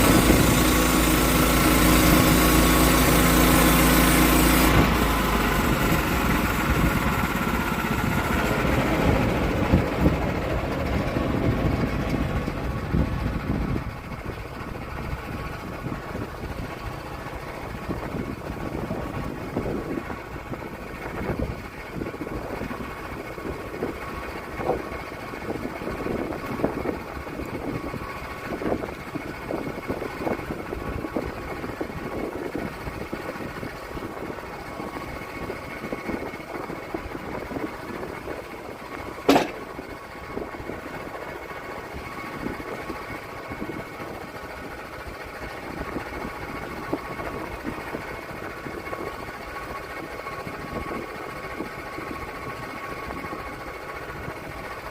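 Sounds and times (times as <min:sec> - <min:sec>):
sawmill engine running: 0:00.0 - 0:54.9
sharp knock: 0:39.3 - 0:39.6.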